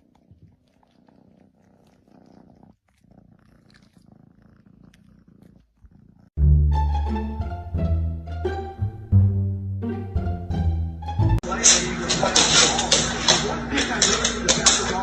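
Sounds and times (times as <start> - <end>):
cat purring: 0.0 - 6.4.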